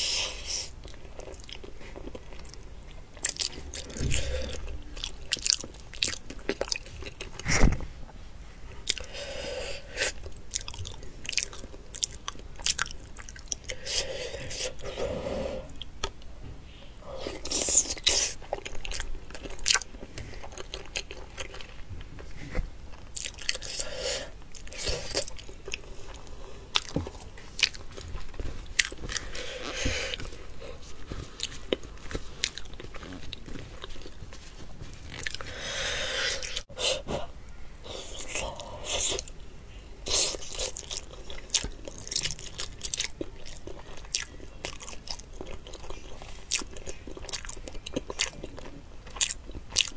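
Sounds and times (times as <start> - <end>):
person biting and chewing: 10.0 - 14.0, 22.9 - 36.6.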